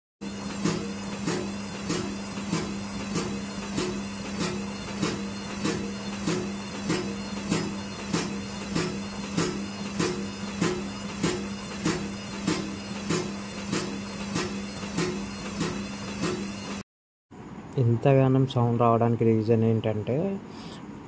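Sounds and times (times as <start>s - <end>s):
washing machine motor hum: 0.2s - 16.8s.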